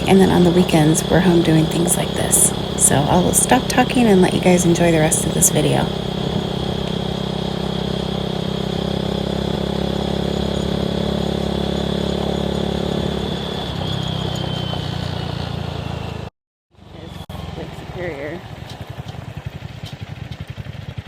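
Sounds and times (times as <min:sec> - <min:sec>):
wind noise: 0:00.0 - 0:06.9
motorcycle engine running: 0:00.0 - 0:16.3, 0:16.9 - 0:21.0.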